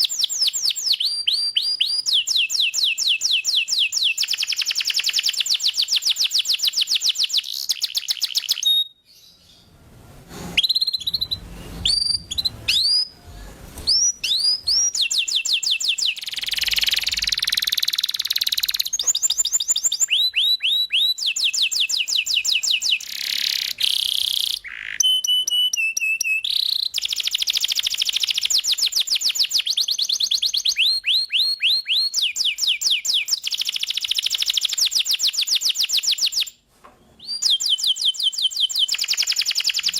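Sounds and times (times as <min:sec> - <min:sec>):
canary singing trills: 0:10.6 - 0:13.2.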